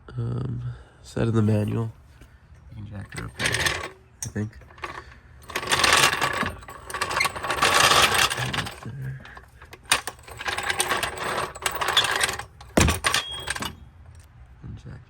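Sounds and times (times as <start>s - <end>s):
metal car jack rattling: 3.1s - 13.8s.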